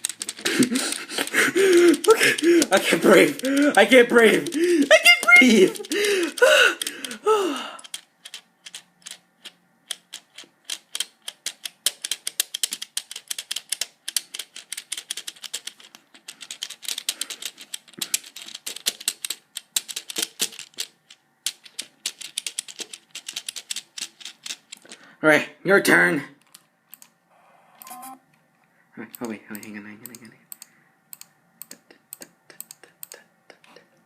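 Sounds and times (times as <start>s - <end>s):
rapid sharp clicks and taps: 0.0s - 7.2s, 7.8s - 25.0s.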